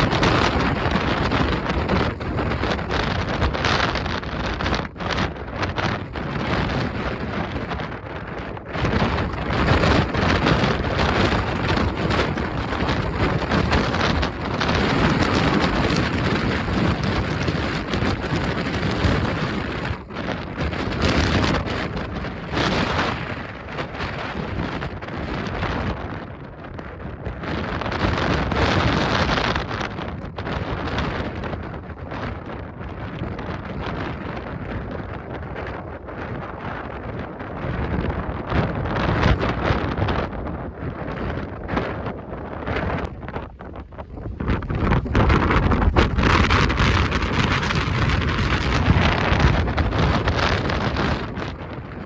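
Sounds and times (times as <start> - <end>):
gusty wind buffeting microphone: 0.0 - 52.0.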